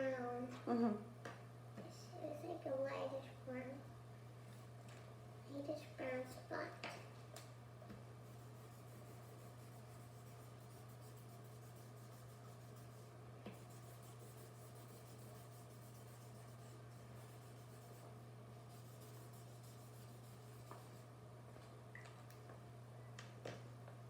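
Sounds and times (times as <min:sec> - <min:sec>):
steady low hum: 0:00.0 - 0:24.0
drawing tool scratching paper: 0:08.2 - 0:21.0.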